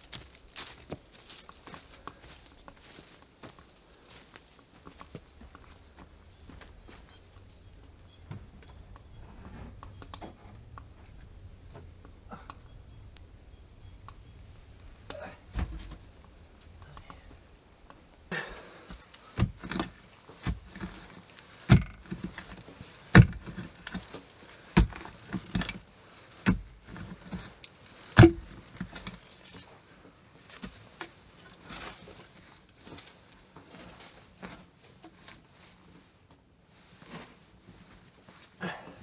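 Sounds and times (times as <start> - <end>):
rustling: 0.0 - 38.6
sharp knocks: 28.2 - 29.1.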